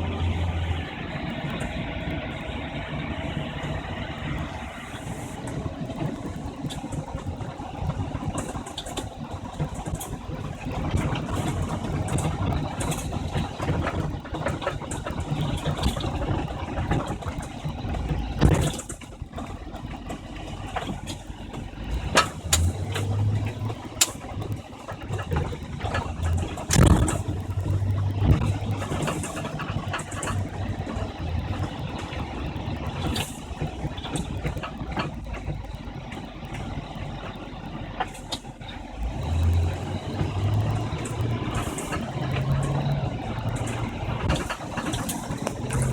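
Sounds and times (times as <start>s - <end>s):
truck engine running: 0.0s - 45.9s.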